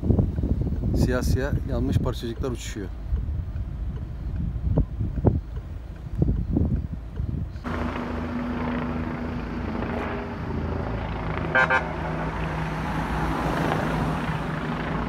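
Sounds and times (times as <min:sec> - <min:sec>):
road traffic: 0:02.9 - 0:15.0
vehicle engine running: 0:07.6 - 0:15.0
car horn tooting: 0:11.5 - 0:12.0.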